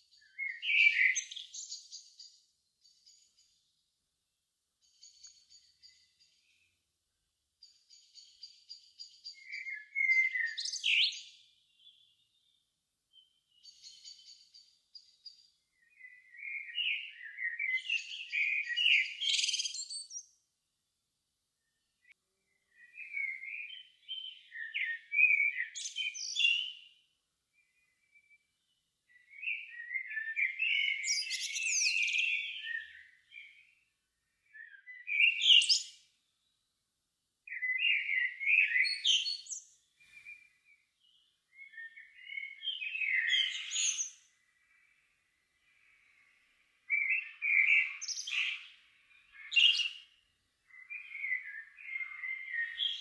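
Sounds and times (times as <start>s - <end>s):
songbird twittering: 0.0s - 3.6s, 4.8s - 6.7s, 7.6s - 20.4s, 22.5s - 26.9s, 27.6s - 33.8s, 34.4s - 36.6s, 37.5s - 53.0s.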